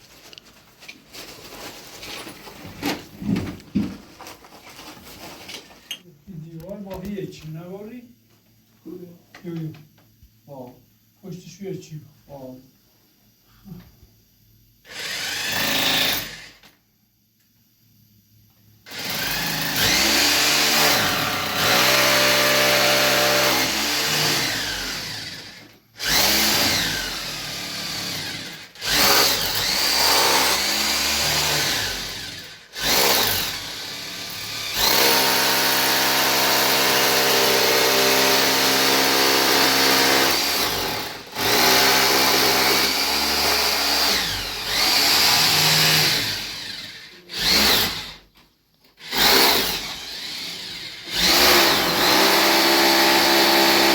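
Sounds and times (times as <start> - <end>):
power tool motor whining: 14.9 - 16.7, 18.9 - 48.2, 49.0 - 53.9.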